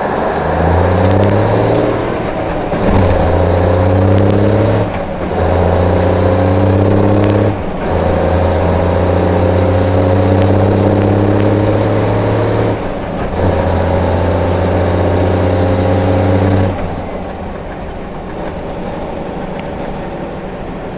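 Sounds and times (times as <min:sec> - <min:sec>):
diesel truck engine at full throttle: 0:00.0 - 0:20.9.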